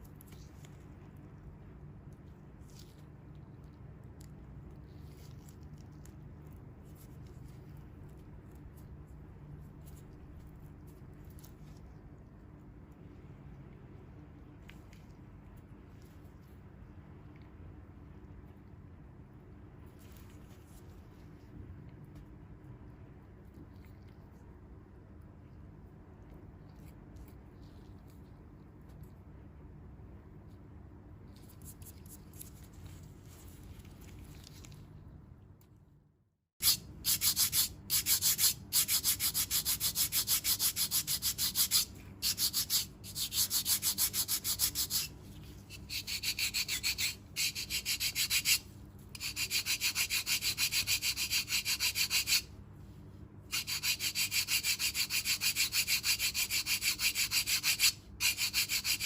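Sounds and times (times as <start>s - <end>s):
foot file rasping on skin: 36.6s - 45.1s, 45.7s - 52.5s, 53.5s - 59.0s.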